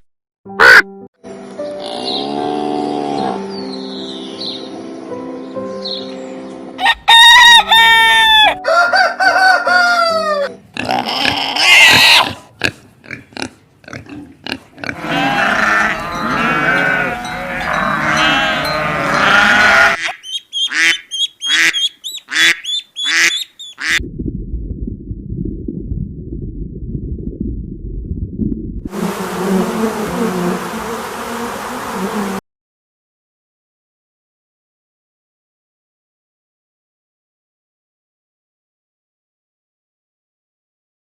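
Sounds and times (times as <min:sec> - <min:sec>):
background music: 0:00.5 - 0:11.4
harsh honking bird calls: 0:00.6 - 0:00.8, 0:15.0 - 0:24.0
chorus of many birds: 0:15.1 - 0:23.8
sharp bird calls: 0:19.9 - 0:24.0.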